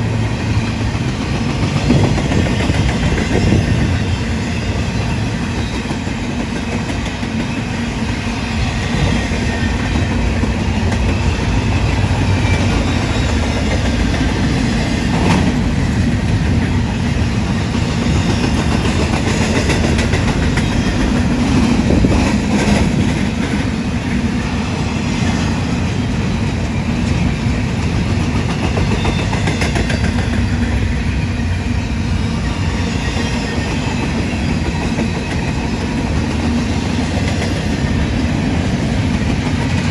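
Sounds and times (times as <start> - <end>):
freight train wheels rumbling: 0.0 - 39.9
clacks over rail joints: 8.8 - 24.2.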